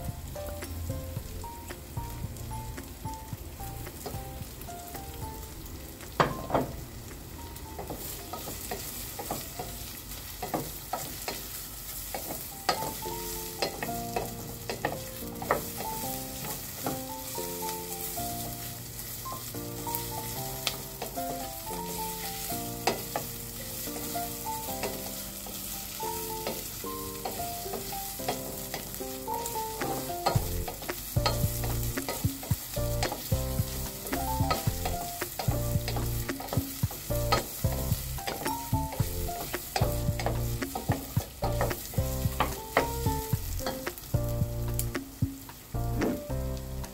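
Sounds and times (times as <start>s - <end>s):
light background music: 0.0s - 46.9s
vegetables sizzling in oil: 0.0s - 46.9s
wooden spatula scraping a pan: 7.8s - 43.8s.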